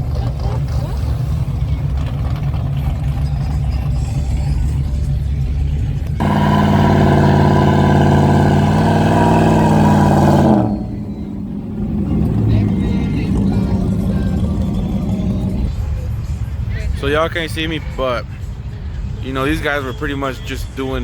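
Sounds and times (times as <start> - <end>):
car engine revving: 6.0 - 15.7.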